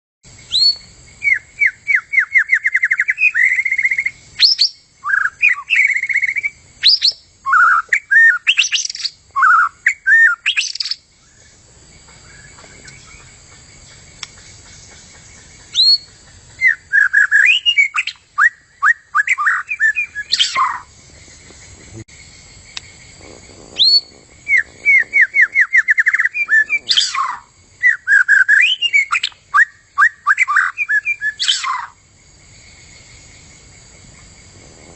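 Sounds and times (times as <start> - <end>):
bird singing varied phrases: 0.4 - 11.6, 15.4 - 20.9, 23.8 - 32.0.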